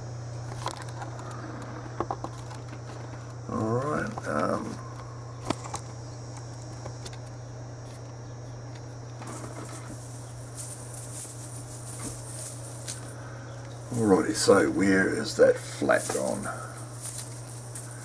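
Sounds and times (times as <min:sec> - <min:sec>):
steady low hum: 0:00.0 - 0:18.0
scratchy rustle with ticks: 0:08.8 - 0:18.0.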